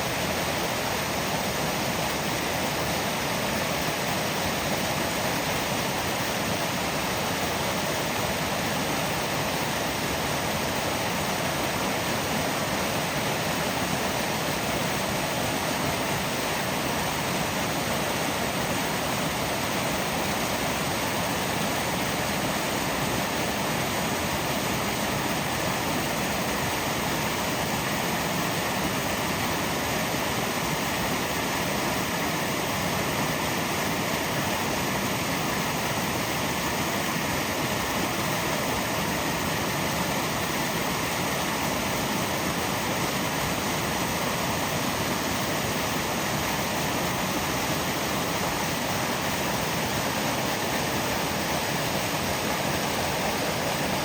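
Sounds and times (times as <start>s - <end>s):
steady rushing noise: 23.3s - 54.0s.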